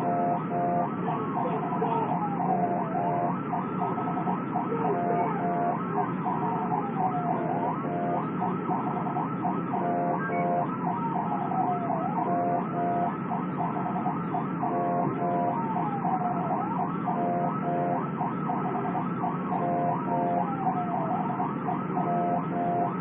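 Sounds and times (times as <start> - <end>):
road and engine noise: 0.0 - 23.0
siren wail: 0.0 - 23.0
siren yelp: 0.0 - 23.0.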